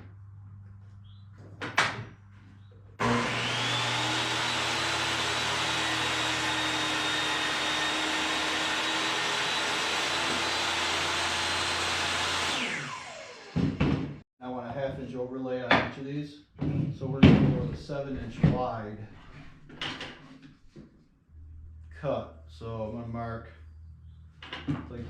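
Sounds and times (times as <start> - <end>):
power saw motor whine: 3.0 - 14.2.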